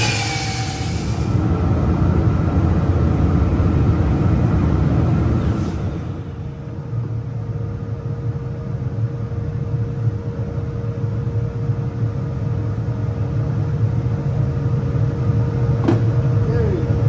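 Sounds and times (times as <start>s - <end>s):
woodshop machine humming: 0.0s - 1.4s.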